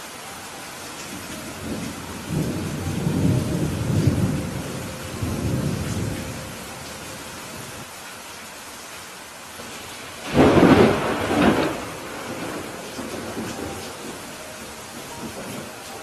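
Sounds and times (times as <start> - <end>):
steady rain: 0.0 - 16.0
rolling thunder: 1.6 - 6.7, 10.2 - 15.7.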